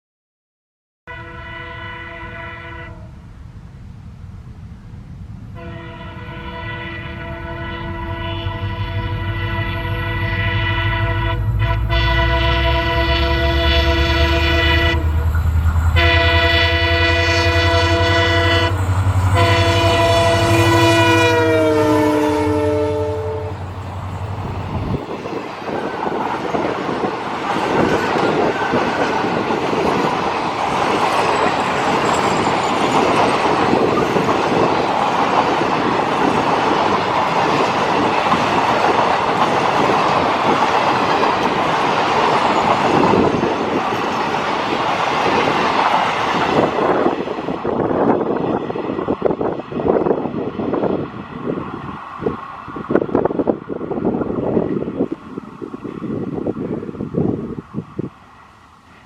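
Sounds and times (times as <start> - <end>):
locomotive air horn: 1.1 - 3.2, 5.6 - 23.7.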